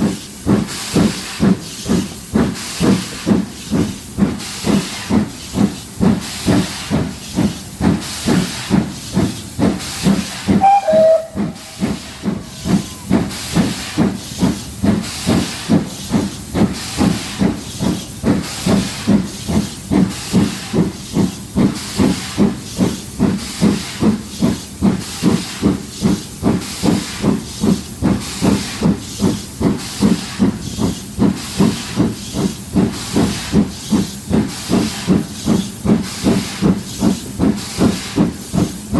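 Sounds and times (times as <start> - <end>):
steam hiss: 0.0 - 38.9
steam locomotive chuffing: 0.0 - 38.9
brief falling tone: 10.6 - 11.5.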